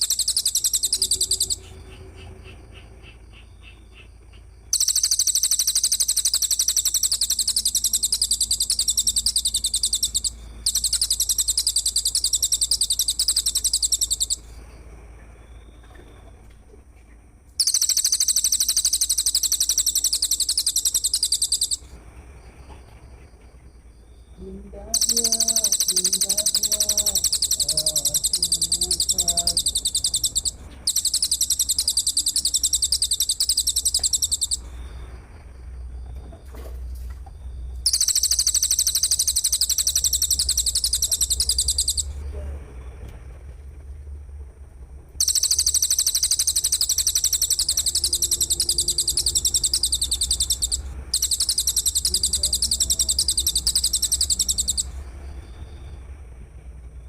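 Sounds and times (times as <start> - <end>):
bird pulsing trill: 0.0 - 14.5, 17.6 - 21.9, 24.4 - 35.0, 37.8 - 42.3, 45.2 - 55.9.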